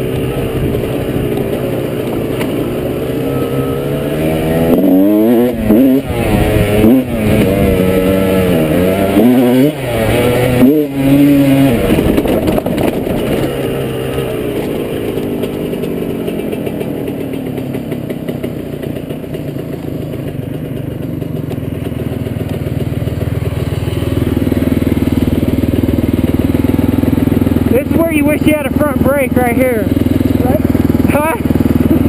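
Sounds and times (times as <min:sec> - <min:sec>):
dirt bike engine: 0:00.0 - 0:32.0
bike clattering over rough ground: 0:11.9 - 0:23.5.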